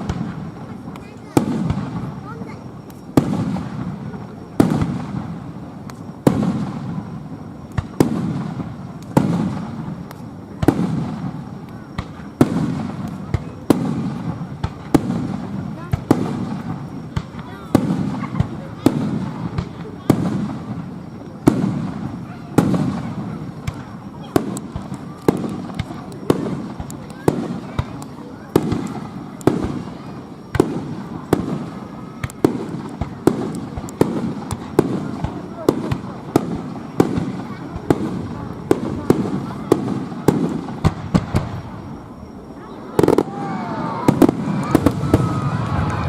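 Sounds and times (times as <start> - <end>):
firework bangs with rumble: 0.0 - 2.6, 3.2 - 5.4, 6.0 - 7.1, 7.7 - 41.7, 43.0 - 46.0
faint firework crackles: 0.0 - 46.0.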